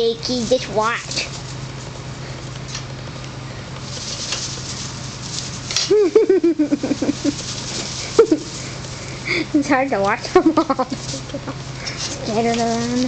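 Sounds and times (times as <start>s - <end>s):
faint pattering: 3.7s - 13.0s
woman giggling: 5.8s - 7.4s, 8.0s - 8.6s, 9.3s - 12.0s.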